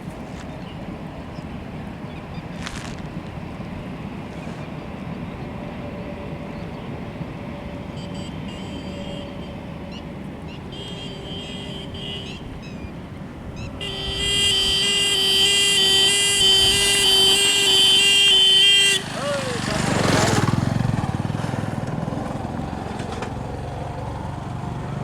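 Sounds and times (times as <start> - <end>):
train horn blast: 7.6 - 12.9, 13.6 - 20.2.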